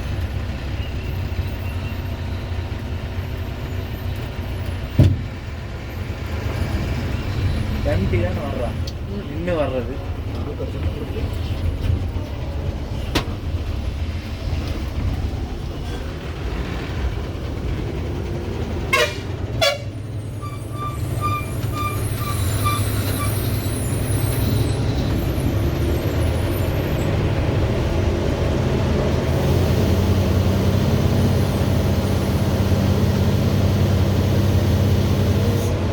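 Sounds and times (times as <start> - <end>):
truck diesel engine running: 0.0 - 35.9
horn toots: 18.9 - 23.5
quick beeps: 20.4 - 23.3.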